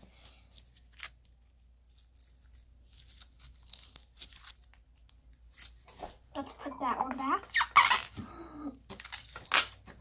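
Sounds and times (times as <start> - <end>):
slime crackling and tearing: 0.9 - 5.6.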